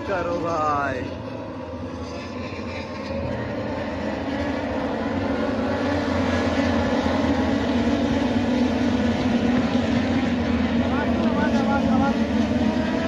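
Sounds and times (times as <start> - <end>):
racing motorcycle engines: 0.0 - 13.0.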